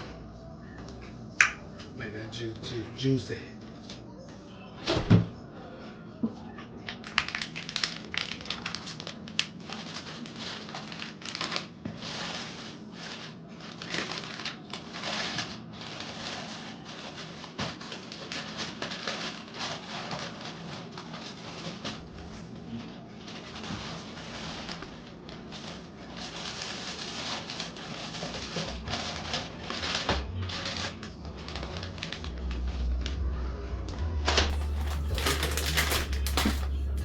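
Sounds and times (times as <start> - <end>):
food wrapping crinkling: 6.8 - 32.6, 34.5 - 37.0.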